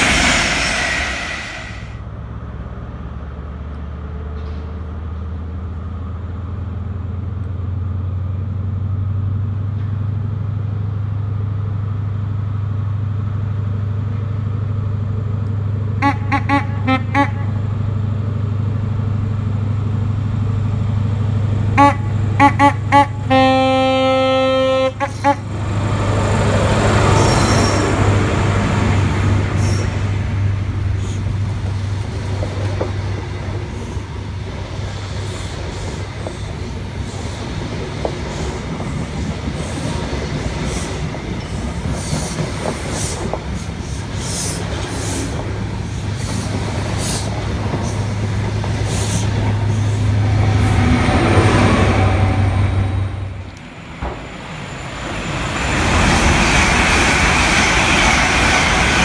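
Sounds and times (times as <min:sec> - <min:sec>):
low drone: 0:00.0 - 0:02.0
passenger coaches rumbling past: 0:00.0 - 0:03.4, 0:13.2 - 0:59.0
train horn blast: 0:16.0 - 0:17.6, 0:21.8 - 0:25.5.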